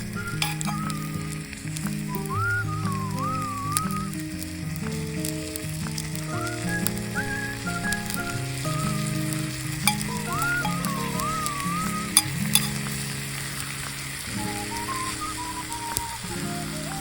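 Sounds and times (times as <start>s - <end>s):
food sizzling on a griddle: 0.0s - 17.0s.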